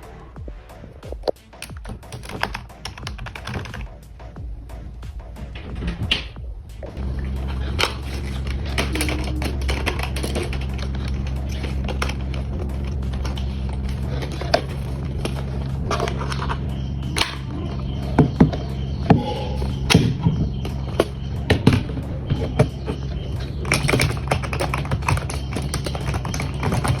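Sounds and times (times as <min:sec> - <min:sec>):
keyboard keys clicking: 0:01.2 - 0:04.0, 0:07.2 - 0:27.0
steady low hum: 0:02.7 - 0:27.0.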